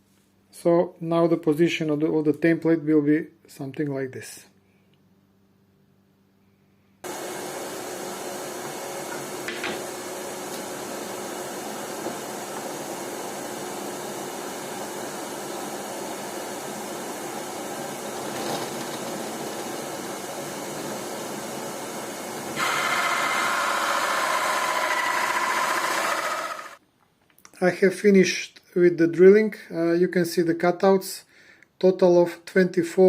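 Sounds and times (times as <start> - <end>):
drill motor whine: 7.1 - 26.8
hole saw cutting wood: 15.4 - 26.8.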